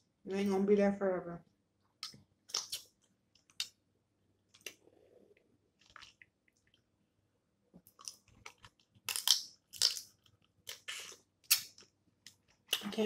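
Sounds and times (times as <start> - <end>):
soft chewing: 4.5 - 6.9, 7.7 - 13.0.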